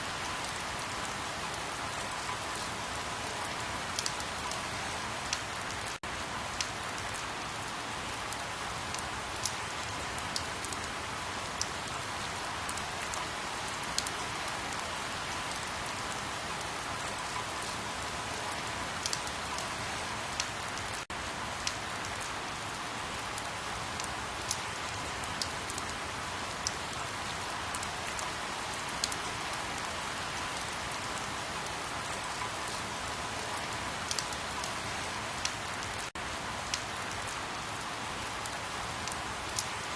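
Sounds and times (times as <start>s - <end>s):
steady rain: 0.0s - 39.9s
raindrop ticks: 4.0s - 4.6s, 19.0s - 19.7s, 21.6s - 22.3s, 23.4s - 25.9s, 33.4s - 34.8s.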